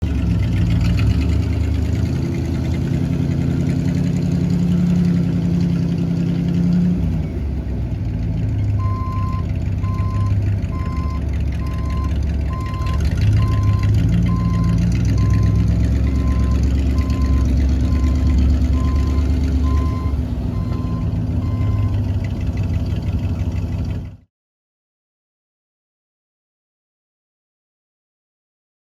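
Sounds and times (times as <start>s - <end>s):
dump truck engine running: 0.0s - 24.3s
backup alarm beeping: 8.8s - 22.0s.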